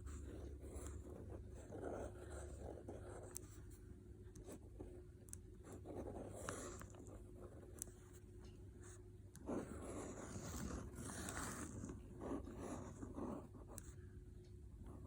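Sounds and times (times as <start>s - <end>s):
pen scratching on paper: 0.0s - 3.8s, 5.6s - 8.2s, 8.8s - 13.9s.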